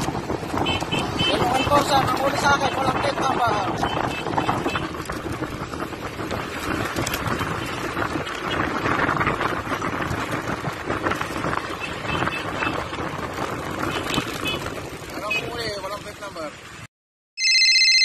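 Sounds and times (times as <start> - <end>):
wind over microphone: 0.0 - 15.3
road and traffic noise: 0.0 - 16.9.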